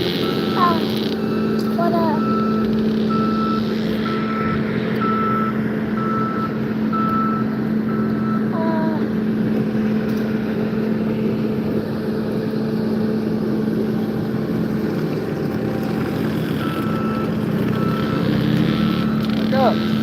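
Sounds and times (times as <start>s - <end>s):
engine droning: 0.0s - 20.0s
short high beeps: 0.2s - 8.5s.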